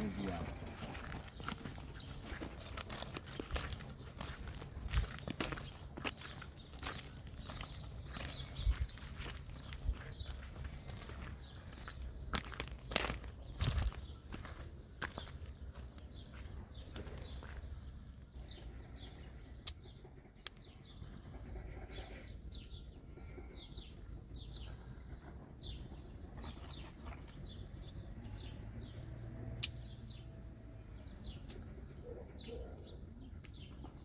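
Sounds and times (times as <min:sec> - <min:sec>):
small birds chirping: 0:00.0 - 0:34.0
sharp clicks: 0:28.2 - 0:30.0.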